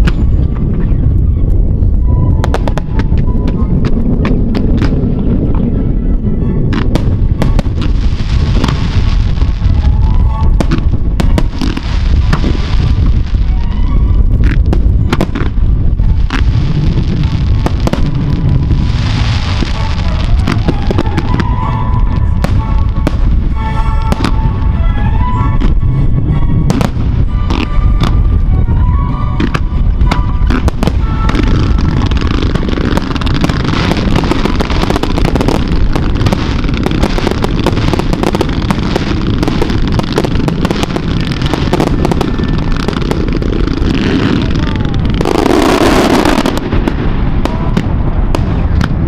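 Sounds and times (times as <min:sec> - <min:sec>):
fireworks banging and crackling: 0:00.0 - 0:05.9, 0:06.6 - 0:25.8, 0:26.6 - 0:49.0
music melody: 0:05.4 - 0:44.7.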